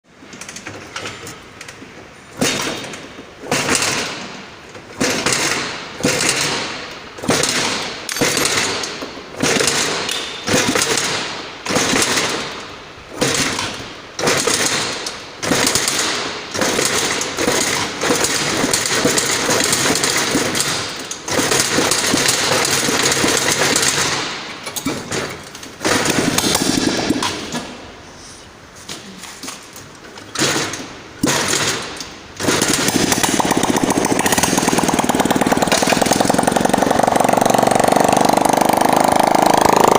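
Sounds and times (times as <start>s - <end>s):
motorcycle engine revving: 32.8s - 39.9s.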